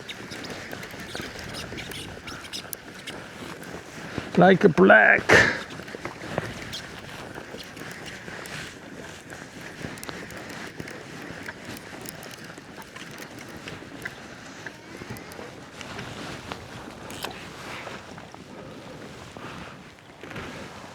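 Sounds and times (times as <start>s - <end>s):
water around kayak: 0.0s - 4.4s, 5.3s - 20.9s
gear clicking and knocking: 6.4s - 14.2s.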